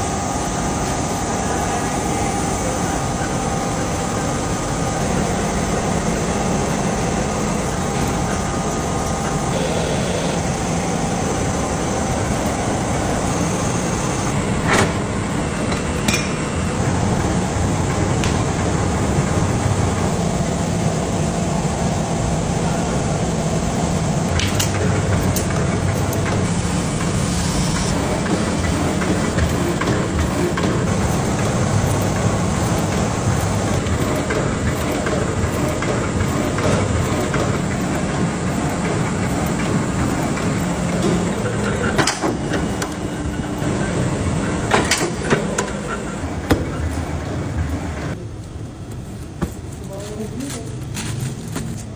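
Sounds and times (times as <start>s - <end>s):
machinery humming and hissing: 0.0s - 51.9s
sharp clicks and knocks: 14.6s - 16.5s.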